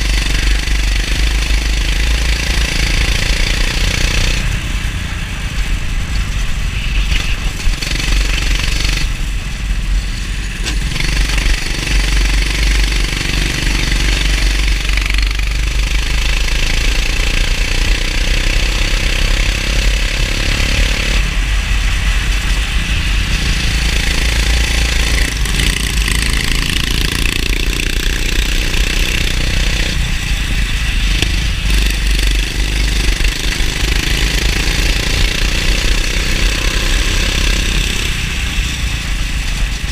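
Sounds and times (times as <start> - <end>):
go-kart engine revving: 0.0 - 4.6, 7.0 - 9.4, 10.6 - 39.9
low rumble: 21.2 - 36.6.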